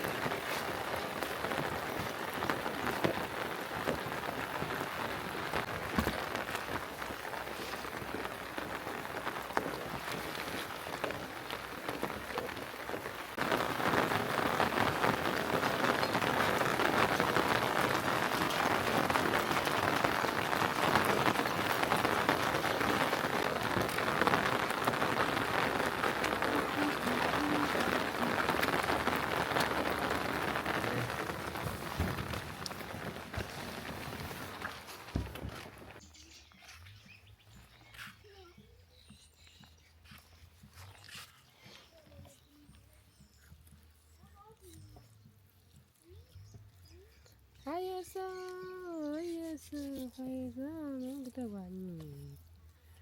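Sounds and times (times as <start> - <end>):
raindrop ticks: 0.0 - 36.0
rain falling: 0.0 - 36.3.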